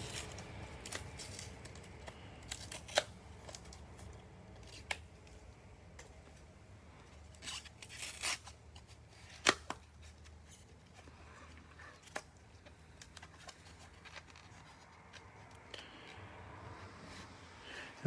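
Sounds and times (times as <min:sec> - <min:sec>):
card packaging crinkling and tearing: 0:00.0 - 0:05.4, 0:07.2 - 0:11.1.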